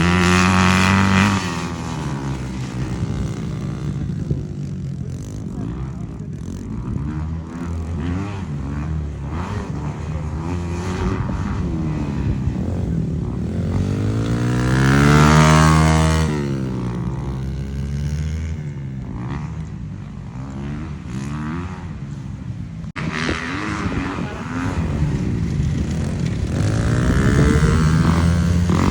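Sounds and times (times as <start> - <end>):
dirt bike engine revving: 0.0 - 22.3, 22.9 - 28.9.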